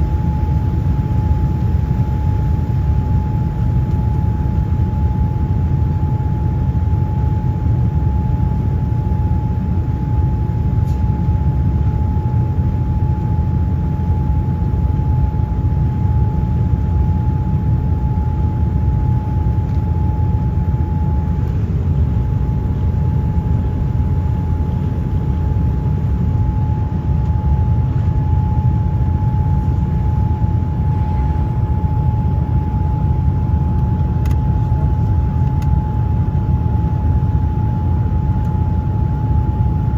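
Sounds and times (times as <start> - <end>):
airliner cabin rumble: 0.0 - 39.9
constant whine: 0.0 - 39.9.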